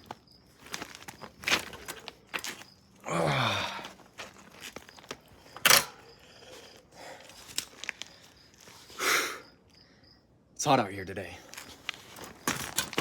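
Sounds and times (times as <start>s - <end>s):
person sighing or grunting: 3.0s - 3.9s
breathy rush: 3.0s - 4.0s.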